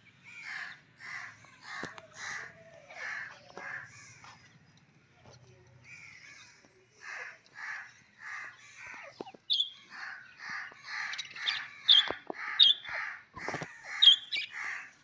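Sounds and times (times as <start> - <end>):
birds making harsh calls: 0.0 - 4.6, 5.8 - 15.0
high sharp bird chirps: 13.9 - 14.6.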